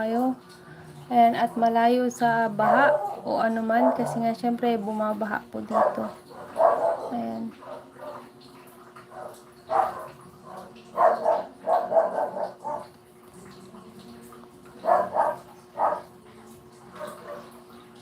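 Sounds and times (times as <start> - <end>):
faint steady hum: 0.0 - 18.0
dog barking: 2.6 - 4.4, 5.7 - 8.3, 9.1 - 12.9, 14.8 - 16.1, 16.9 - 17.6.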